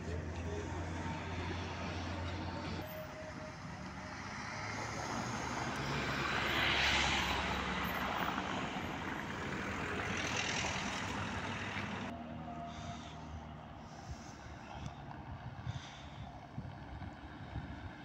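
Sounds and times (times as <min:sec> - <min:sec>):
low engine hum: 0:00.0 - 0:18.0
vehicle passing: 0:00.0 - 0:18.0.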